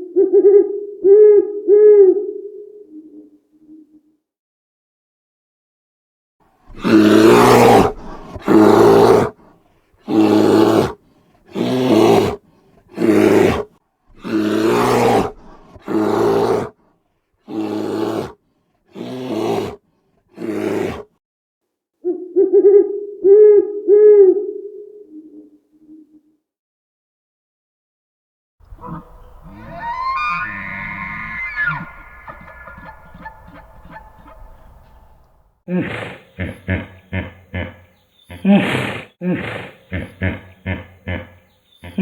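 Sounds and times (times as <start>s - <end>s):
animal hooting calls: 6.7s - 9.4s, 28.7s - 42.0s
animal roaring: 6.7s - 9.4s, 10.1s - 12.4s, 13.0s - 16.7s, 17.5s - 18.4s, 19.0s - 19.8s, 20.4s - 21.1s, 28.7s - 35.2s.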